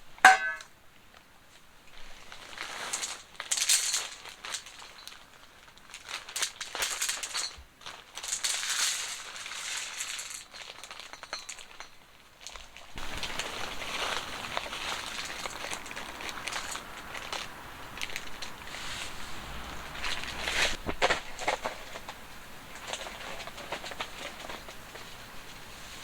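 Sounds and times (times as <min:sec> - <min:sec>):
rustling and crinkling: 0:00.0 - 0:26.0
sharp ringing clink: 0:00.3 - 0:00.7.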